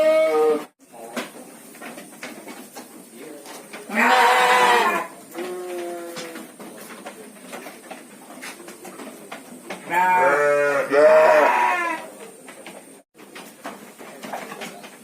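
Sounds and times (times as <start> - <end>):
sheep bleating: 3.9 - 6.4, 9.9 - 12.0.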